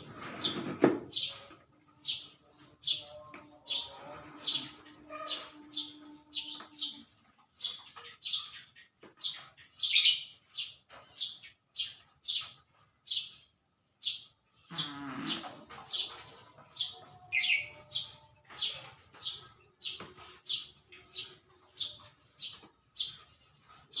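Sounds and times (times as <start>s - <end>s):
small bird chirping: 0.4s - 24.0s.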